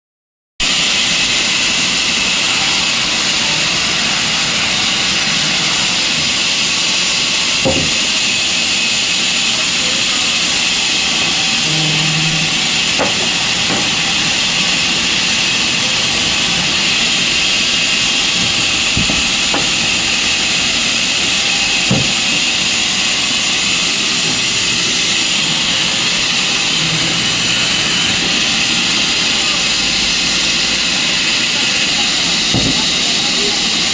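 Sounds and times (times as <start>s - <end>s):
sawmill machinery hissing: 0.6s - 33.9s
sharp knocks: 7.6s - 8.0s, 18.4s - 19.8s, 21.9s - 22.2s.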